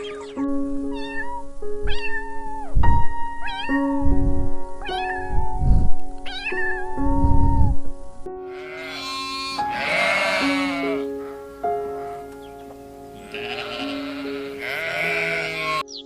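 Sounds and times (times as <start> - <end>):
background music: 0.0 - 16.0
cat meowing: 0.9 - 2.7, 3.4 - 3.9, 4.8 - 5.6, 6.2 - 7.4, 8.6 - 11.1, 13.2 - 15.8.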